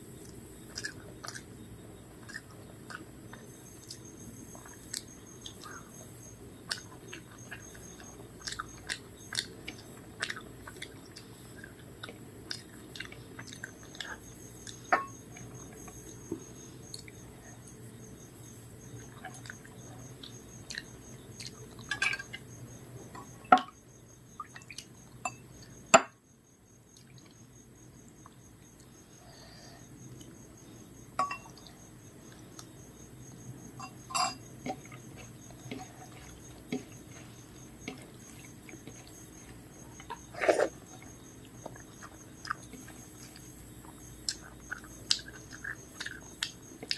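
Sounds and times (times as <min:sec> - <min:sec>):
chewing and smacking: 0:00.2 - 0:01.6, 0:02.2 - 0:05.9, 0:06.6 - 0:17.8, 0:18.8 - 0:22.6, 0:34.4 - 0:46.9
plate clinking: 0:14.9 - 0:15.2, 0:31.2 - 0:31.6, 0:33.8 - 0:34.8.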